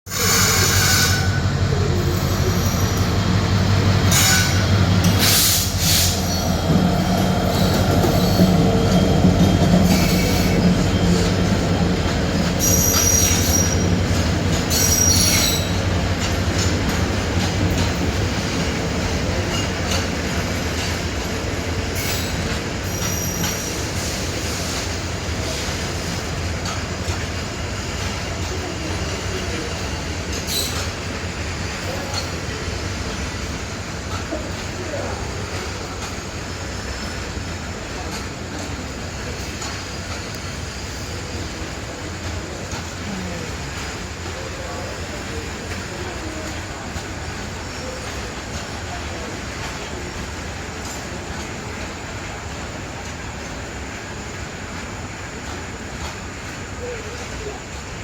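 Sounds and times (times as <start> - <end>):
freight train rumble and clatter: 0.0 - 58.0
high-pitched wheel squeals: 0.1 - 1.4, 12.6 - 14.0.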